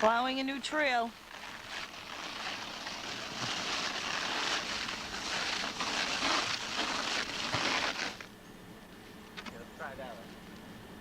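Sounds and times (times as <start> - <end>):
sled sliding through snow: 1.2 - 8.3.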